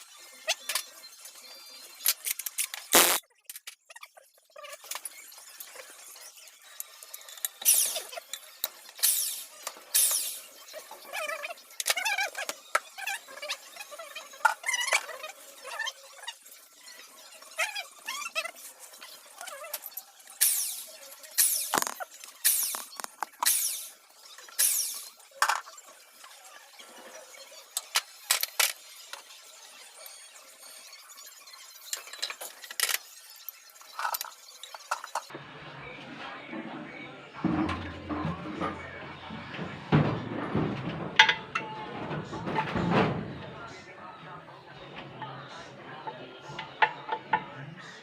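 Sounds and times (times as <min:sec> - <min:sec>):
squeaky metal-on-metal sounds: 0:00.4 - 0:35.3, 0:37.5 - 0:43.6
tools scraping and ratcheting: 0:02.0 - 0:15.8, 0:16.4 - 0:26.3, 0:27.8 - 0:29.3, 0:31.1 - 0:35.3, 0:39.5 - 0:43.4.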